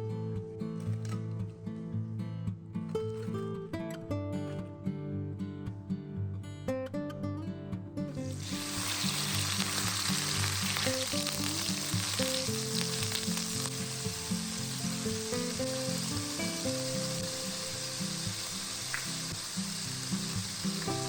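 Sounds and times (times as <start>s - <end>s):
acoustic guitar music: 0.0s - 21.0s
food sizzling in hot oil: 8.2s - 21.0s.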